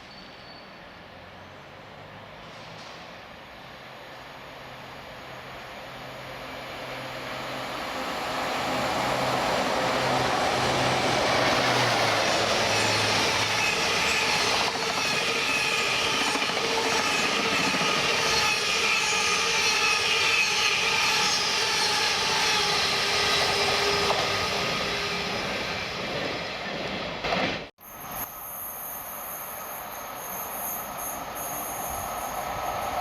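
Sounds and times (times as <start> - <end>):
train rumbling on rails: 0.0 - 33.0
wheels squealing: 9.9 - 26.6.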